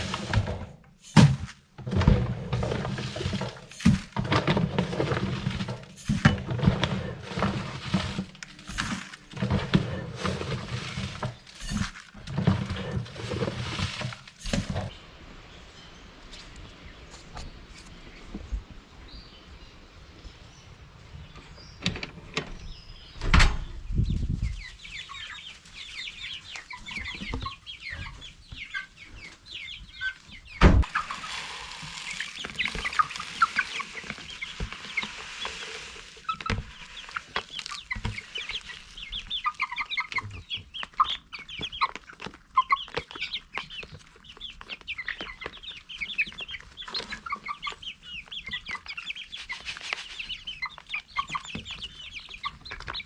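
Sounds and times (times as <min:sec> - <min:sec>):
chickens clucking: 0:00.0 - 0:14.9, 0:24.0 - 0:53.0.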